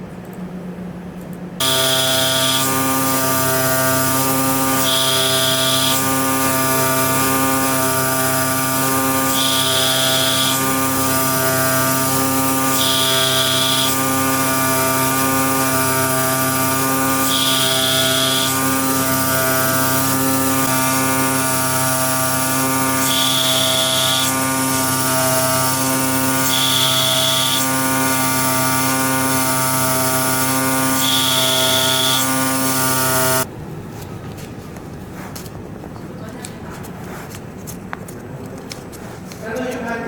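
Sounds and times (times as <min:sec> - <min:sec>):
cutting machine hum and whine: 0:01.6 - 0:33.5
high machine tone: 0:01.6 - 0:33.5.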